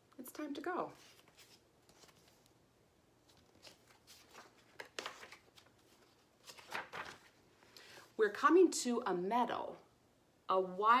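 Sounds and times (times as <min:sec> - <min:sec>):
faint paper rustling: 0:00.8 - 0:02.6, 0:03.2 - 0:08.3.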